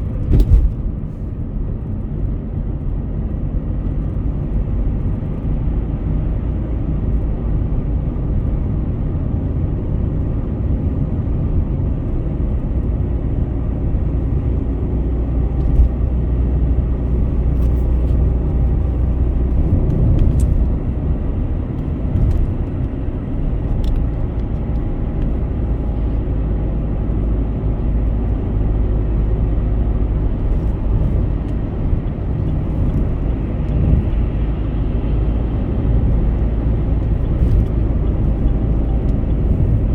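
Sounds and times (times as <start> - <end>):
car tyres and engine rumbling: 0.0 - 39.9.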